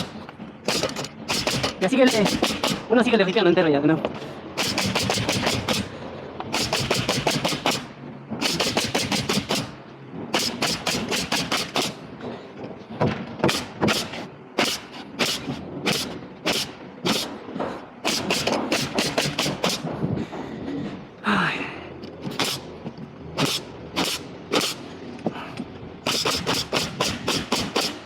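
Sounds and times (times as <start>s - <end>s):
nails driven into plywood: 0.0s - 2.9s, 4.6s - 5.9s, 6.5s - 12.1s, 13.0s - 20.0s, 22.2s - 22.7s, 23.4s - 25.3s, 26.0s - 28.0s.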